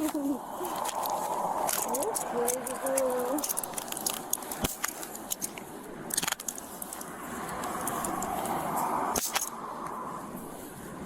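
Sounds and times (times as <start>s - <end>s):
handcuffs clicking and jingling: 0.0s - 8.5s, 9.2s - 9.6s.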